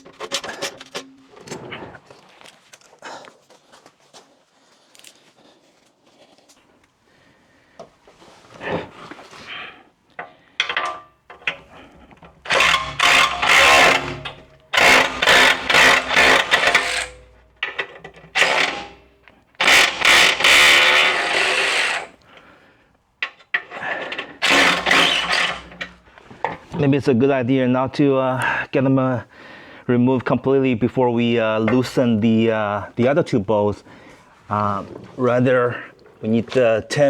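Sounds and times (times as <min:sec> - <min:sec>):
power tool backing out bolts: 0:10.6 - 0:22.2, 0:23.2 - 0:26.6.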